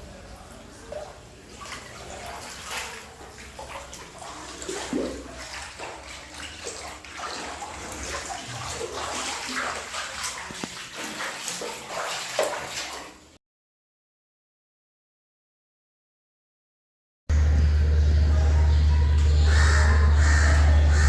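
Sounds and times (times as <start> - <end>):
water splashing and sloshing: 0.0 - 13.4, 18.8 - 21.0.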